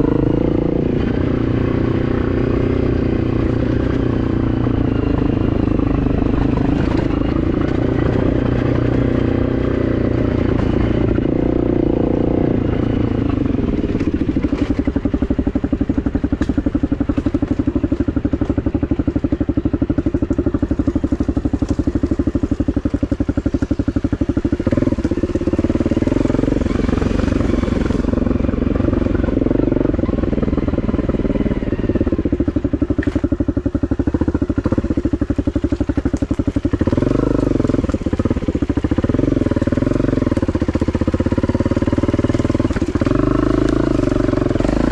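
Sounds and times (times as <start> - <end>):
dirt bike engine running: 0.0 - 44.9
sharp clicks and clatter: 13.4 - 26.1, 30.0 - 41.5.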